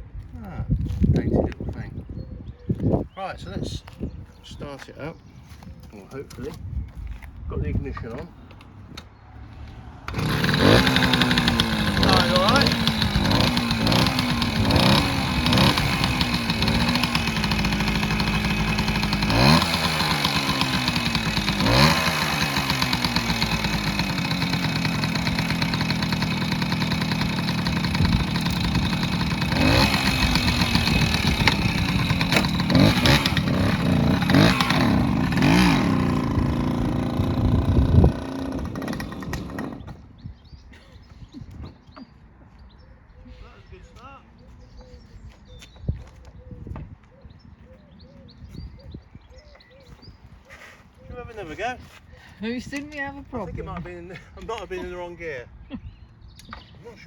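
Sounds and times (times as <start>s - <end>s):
motorcycle engine revving: 9.4s - 40.1s.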